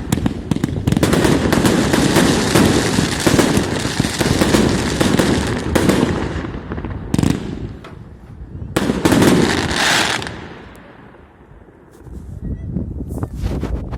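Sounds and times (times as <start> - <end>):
firework bursts: 0.0 - 8.2, 8.8 - 11.2.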